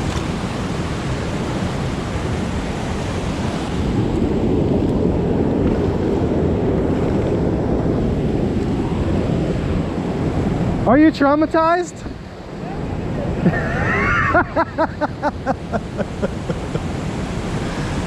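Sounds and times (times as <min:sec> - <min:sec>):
waterfall roaring: 0:09.8 - 0:18.0.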